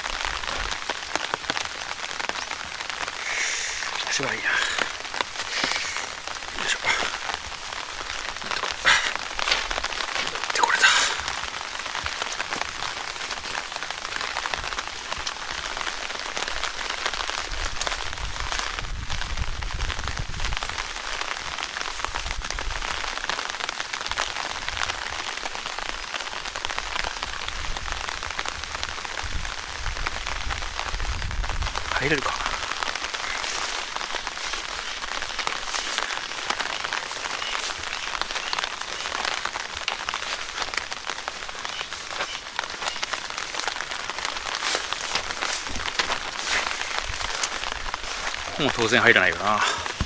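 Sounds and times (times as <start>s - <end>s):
light rain on leaves: 0.0s - 50.0s
leaves and stems brushing: 3.5s - 15.6s, 32.0s - 50.0s.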